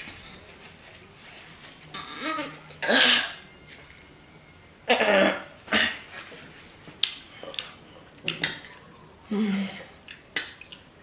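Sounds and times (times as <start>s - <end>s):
person coughing: 2.1s - 3.4s.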